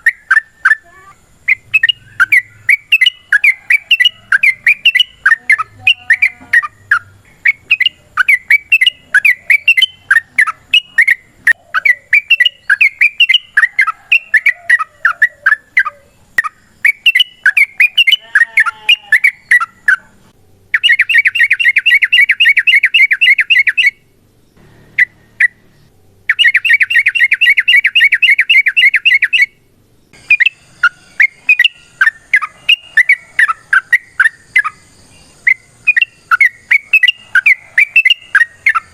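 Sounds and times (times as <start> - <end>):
bird rapid trills: 0.0 - 20.1, 20.7 - 24.1, 24.8 - 38.9
bird chattering song: 0.0 - 38.9.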